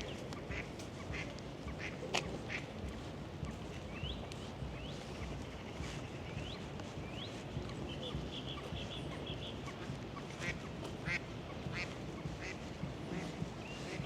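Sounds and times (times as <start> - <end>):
ducks calling: 0.0 - 4.2, 7.2 - 14.0
low city rumble: 0.0 - 14.0.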